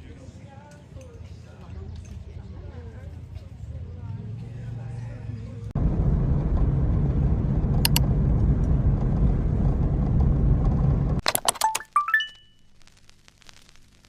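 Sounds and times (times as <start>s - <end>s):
vehicle rumble: 1.1s - 11.2s
clicks: 7.8s - 8.0s
rising chime tones: 11.7s - 12.5s.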